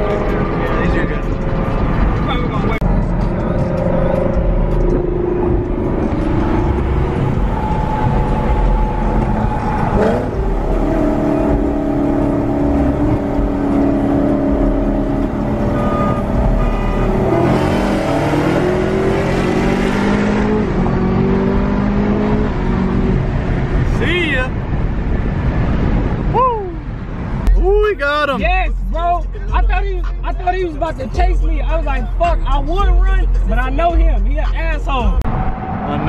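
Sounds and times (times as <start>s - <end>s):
car engine revving through gears: 0.0s - 23.8s.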